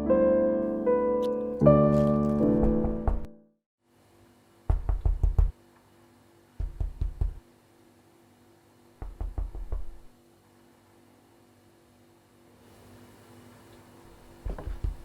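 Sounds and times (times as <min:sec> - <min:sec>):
rapid knocking: 0:04.7 - 0:05.5, 0:06.6 - 0:07.4, 0:09.0 - 0:10.1.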